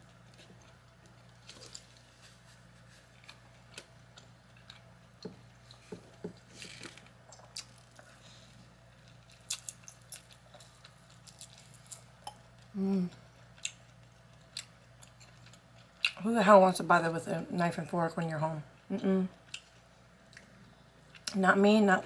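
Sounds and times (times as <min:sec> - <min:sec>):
person chewing: 0:07.2 - 0:08.2, 0:09.0 - 0:16.2
person humming: 0:12.8 - 0:13.2.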